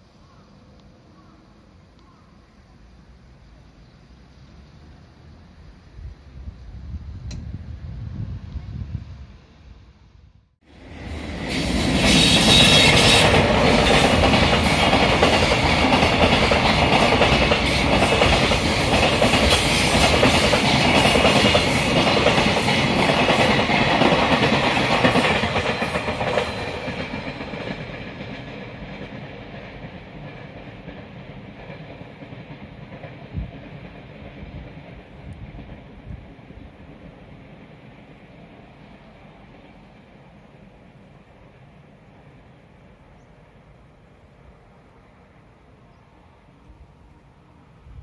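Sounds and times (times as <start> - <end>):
train wheels clacking on rails: 11.0 - 38.0.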